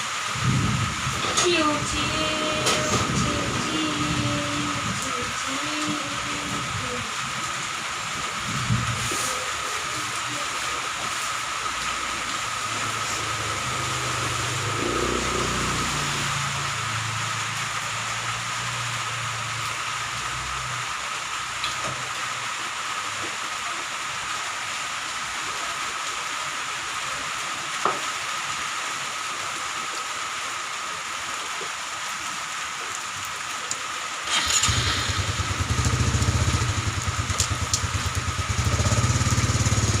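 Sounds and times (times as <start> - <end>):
rain hissing: 0.0 - 40.0
small engine running: 12.9 - 16.5, 34.3 - 40.0.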